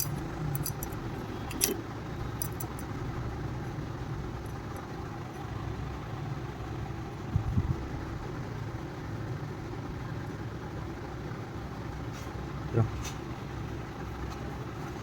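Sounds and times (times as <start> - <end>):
light metallic clinks: 0.0 - 2.9
engine idling: 0.0 - 15.0.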